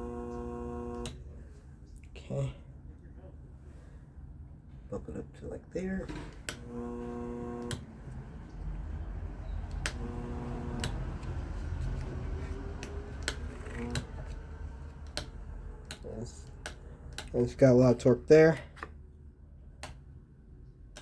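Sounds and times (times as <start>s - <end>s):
higher buzzing hum: 0.0s - 1.4s, 6.5s - 15.9s
fan motor humming: 0.0s - 1.6s, 5.0s - 21.0s
sharp clicks: 7.6s - 8.6s, 9.6s - 11.4s, 12.8s - 17.5s, 19.8s - 20.1s.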